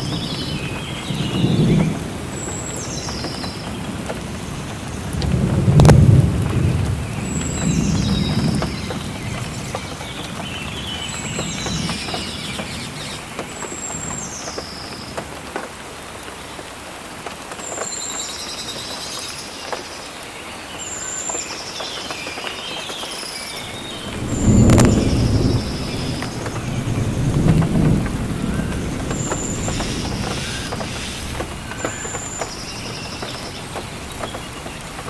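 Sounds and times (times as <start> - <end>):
thunder rumble: 0.0 - 14.3, 23.6 - 35.0
steady rain: 0.0 - 35.0
birds whistling: 23.0 - 35.0.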